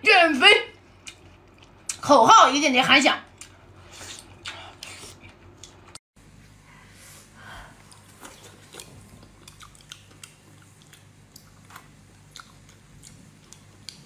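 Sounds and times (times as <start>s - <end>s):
low steady hum: 0.0s - 14.0s
wet mouth chewing clicks: 8.6s - 11.6s, 12.3s - 14.0s.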